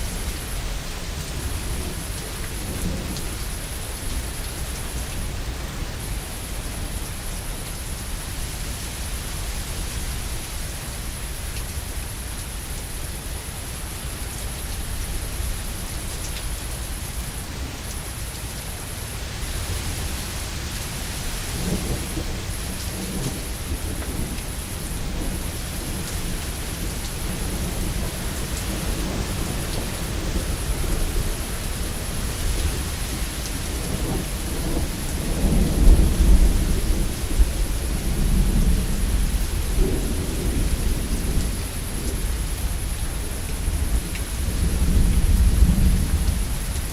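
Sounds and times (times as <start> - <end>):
heavy rain: 0.0 - 46.9
rolling thunder: 21.4 - 46.8.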